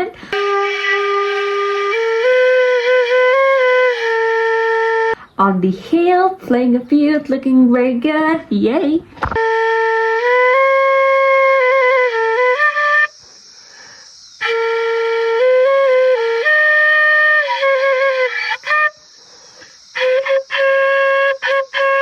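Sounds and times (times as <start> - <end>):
flute playing slow melody: 0.3 - 5.2, 9.4 - 13.4, 14.4 - 22.0.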